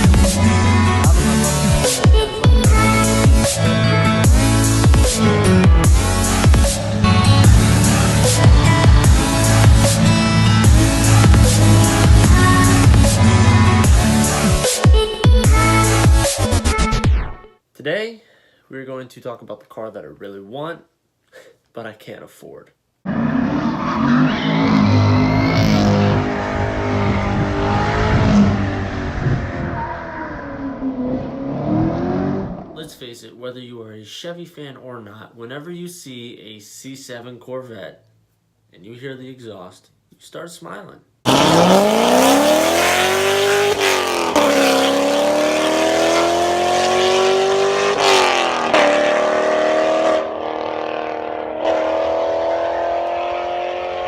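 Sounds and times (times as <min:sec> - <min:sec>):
car engine revving through exhaust: 0:02.8 - 0:14.5, 0:23.1 - 0:32.8, 0:41.3 - 0:54.0.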